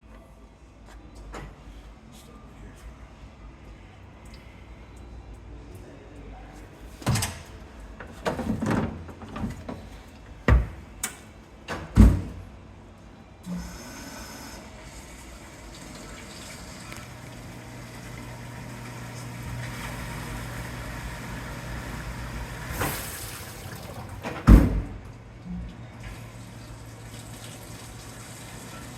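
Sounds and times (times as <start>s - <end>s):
dishwasher clunks: 10.5s - 10.8s, 24.0s - 25.0s
pump hum: 13.4s - 24.4s.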